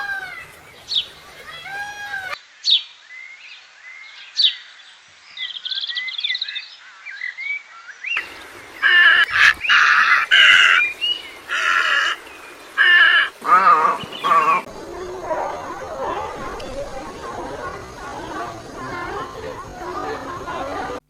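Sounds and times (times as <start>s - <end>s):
bird calling loudly: 8.2s - 18.8s.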